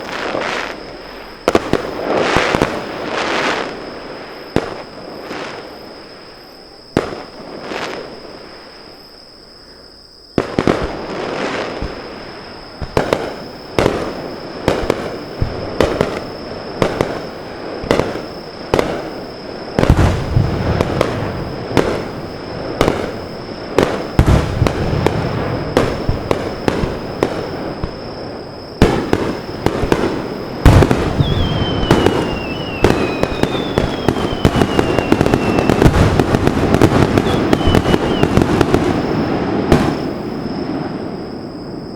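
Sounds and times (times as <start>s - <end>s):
fireworks bangs and crackling: 0.0s - 9.0s, 10.3s - 41.9s
high falling whistles: 21.4s - 41.9s.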